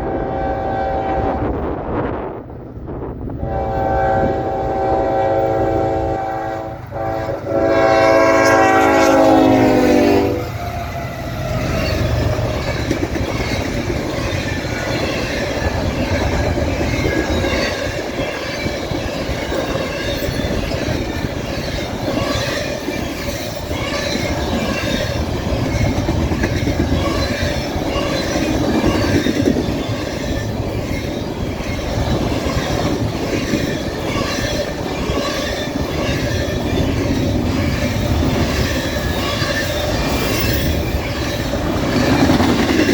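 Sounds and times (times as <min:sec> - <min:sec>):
locomotive horn blasts: 0:00.0 - 0:01.6, 0:03.4 - 0:10.5
passing train rumble and clatter: 0:00.0 - 0:42.9.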